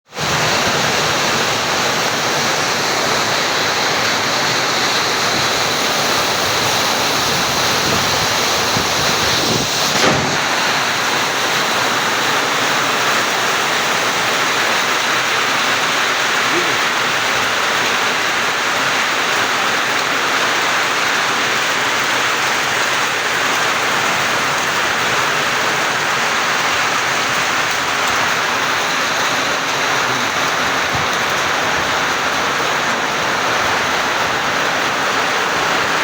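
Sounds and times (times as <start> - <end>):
heavy rain rushing: 0.1 - 36.0.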